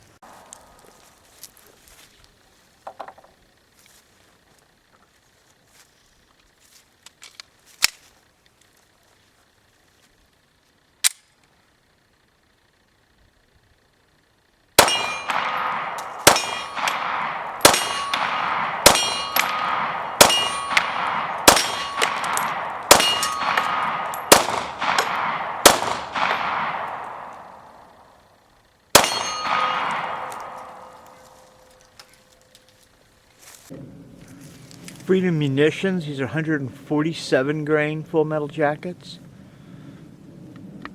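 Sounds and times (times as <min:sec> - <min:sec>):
sharp click: 0:11.0 - 0:11.4
pistol shots with ringing decay: 0:14.8 - 0:28.2, 0:28.9 - 0:31.8.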